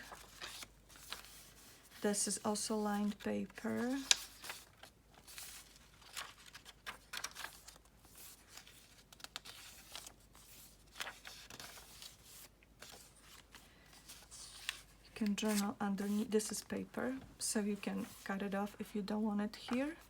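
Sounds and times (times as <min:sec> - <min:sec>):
paper pages turning: 0:00.0 - 0:16.7, 0:17.7 - 0:18.4.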